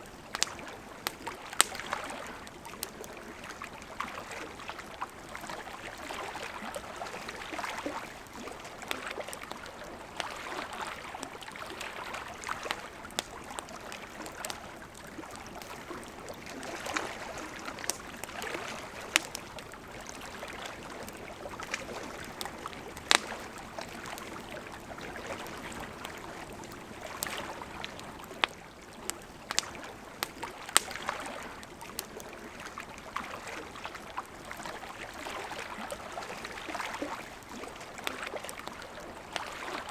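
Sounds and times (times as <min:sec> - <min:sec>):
campfire crackling and popping: 0:00.0 - 0:39.9
river flowing: 0:00.0 - 0:39.9.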